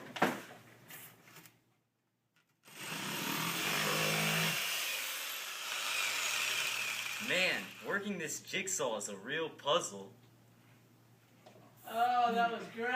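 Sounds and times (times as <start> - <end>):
electric jigsaw cutting: 2.6 - 7.9.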